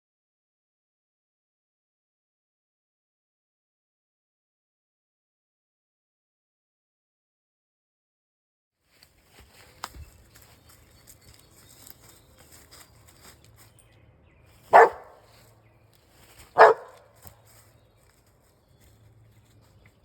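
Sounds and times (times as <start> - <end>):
dog barking: 14.7 - 15.3, 16.5 - 17.1.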